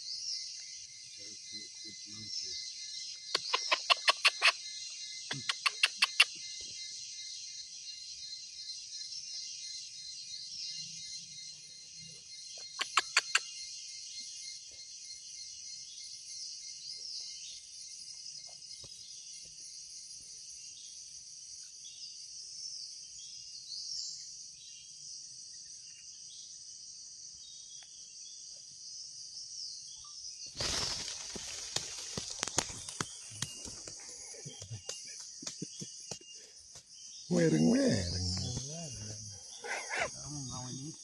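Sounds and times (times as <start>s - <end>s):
small bird chirps: 0.0s - 19.8s, 29.4s - 41.0s
forest insects droning: 0.0s - 41.0s
sharp clicks: 3.4s - 4.4s, 5.3s - 6.2s.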